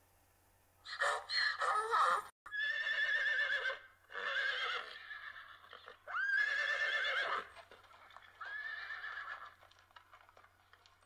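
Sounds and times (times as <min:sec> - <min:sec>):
horse whinnying: 0:02.5 - 0:09.7.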